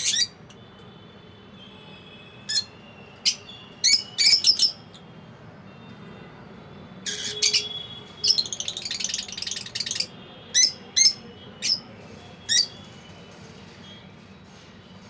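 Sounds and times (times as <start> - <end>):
lovebird chattering: 3.3 - 4.8, 7.1 - 11.8
sharp high bird calls: 7.1 - 11.8.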